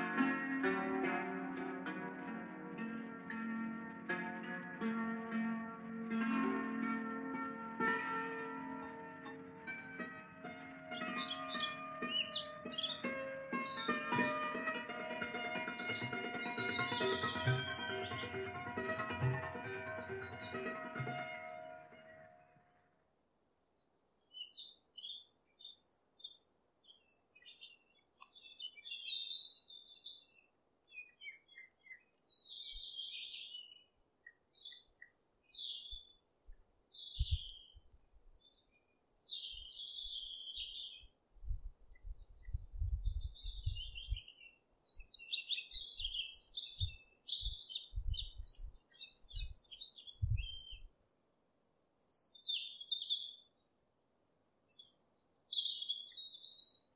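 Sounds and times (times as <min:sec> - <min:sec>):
small birds chirping: 0:08.7 - 0:18.6, 0:20.0 - 0:22.1, 0:23.8 - 0:37.8, 0:38.4 - 0:41.2, 0:41.9 - 0:50.9, 0:51.6 - 0:56.9.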